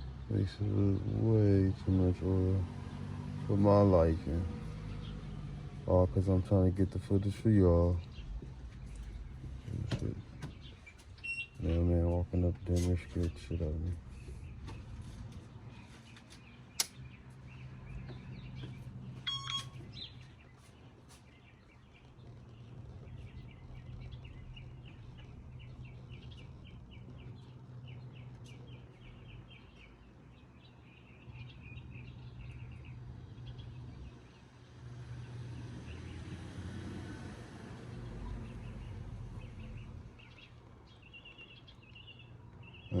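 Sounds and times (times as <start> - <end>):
small bird chirping: 6.4 - 12.3, 12.9 - 36.5, 37.6 - 43.0
single click: 16.8 - 17.0.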